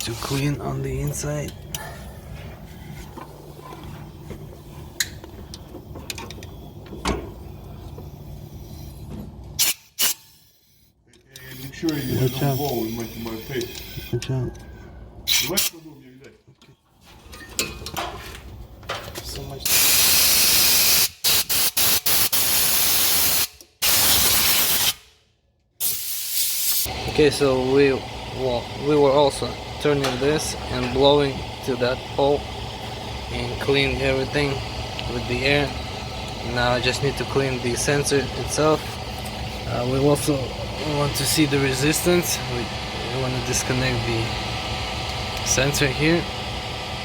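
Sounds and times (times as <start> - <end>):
air blower hissing in bursts: 11.4 - 14.1, 19.6 - 25.0, 25.8 - 47.0
low steady hum: 26.9 - 47.0.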